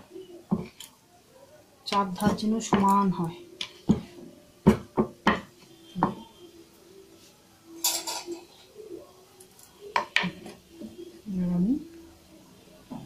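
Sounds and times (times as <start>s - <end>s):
kitchen utensils clinking: 7.8s - 8.8s.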